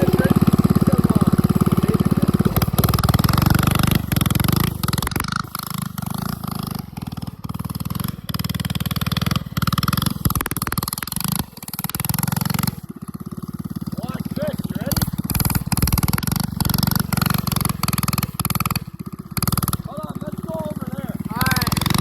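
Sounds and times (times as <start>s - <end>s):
small engine revving: 0.0s - 22.0s.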